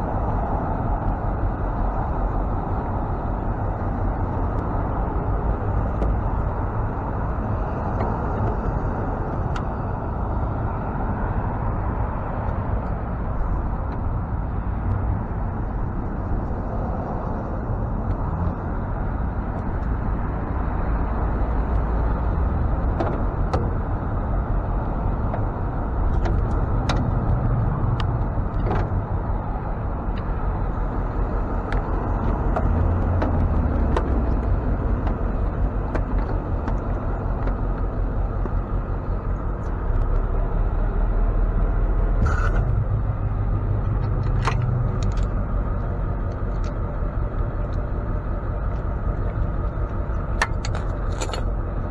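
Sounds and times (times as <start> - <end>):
truck engine and road rumble: 0.0 - 51.9.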